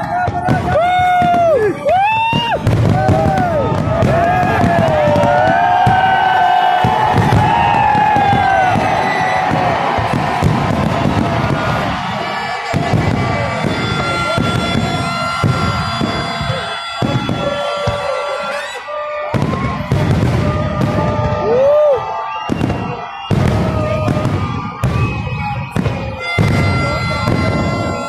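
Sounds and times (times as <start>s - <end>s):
crowd noise: 0.0s - 28.0s
fireworks bangs and crackle: 0.0s - 28.0s
horn-like tones: 7.6s - 19.7s, 24.7s - 28.0s.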